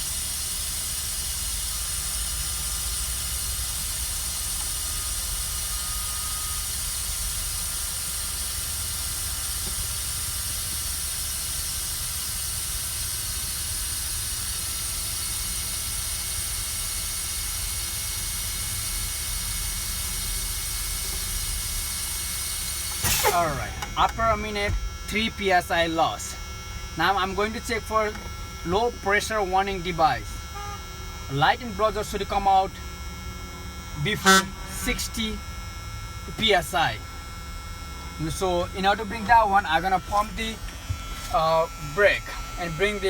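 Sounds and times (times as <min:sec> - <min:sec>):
air brakes hissing: 0:22.4 - 0:24.1.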